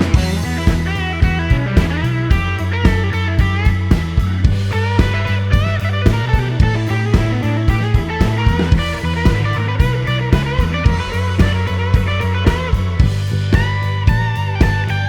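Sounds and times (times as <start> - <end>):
rock music with electric guitar: 0.0 - 15.0.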